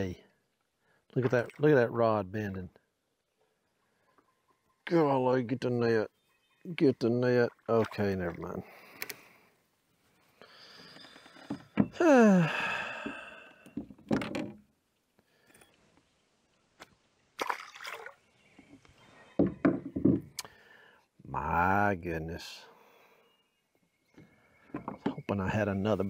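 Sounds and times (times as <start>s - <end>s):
man groaning: 12.0s - 13.2s
knocks and thunks: 13.8s - 14.6s, 19.4s - 20.3s.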